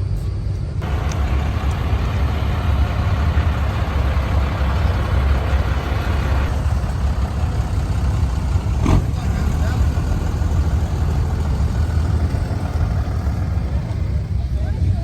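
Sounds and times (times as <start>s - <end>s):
car engine and road rumble: 0.0s - 15.0s
wind and road noise hiss: 0.0s - 15.0s.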